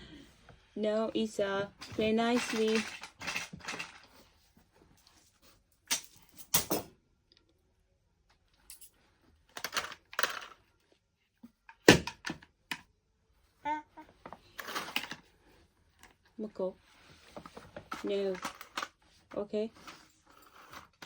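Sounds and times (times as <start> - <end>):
toys knocking and clattering: 1.4 - 4.1, 9.6 - 10.6, 11.7 - 12.9, 17.4 - 20.0.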